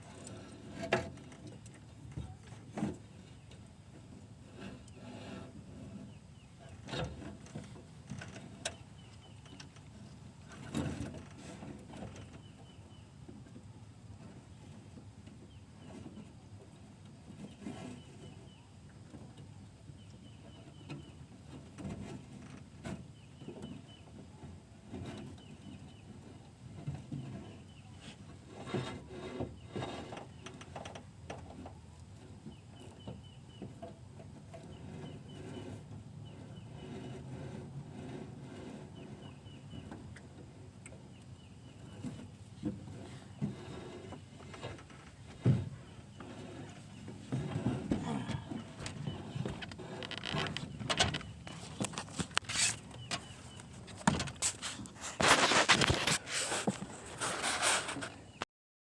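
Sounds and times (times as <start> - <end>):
knocks and bumps: 47.2 - 56.9.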